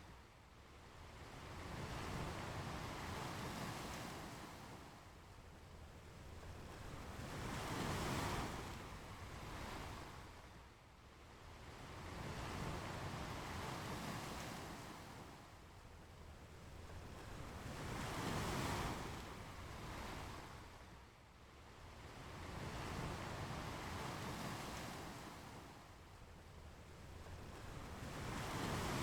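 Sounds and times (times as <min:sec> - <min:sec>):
ocean waves breaking on beach: 0:27.1 - 0:29.0.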